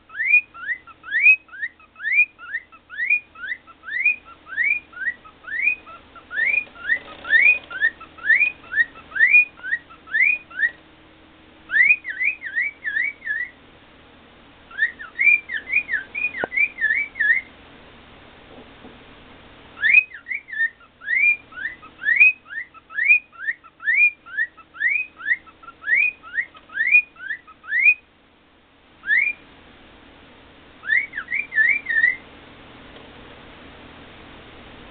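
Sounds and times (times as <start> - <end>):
cockatiel whistling: 0.1 - 10.8, 11.7 - 13.6, 14.7 - 17.5, 19.8 - 28.0, 29.0 - 29.4, 30.8 - 32.2.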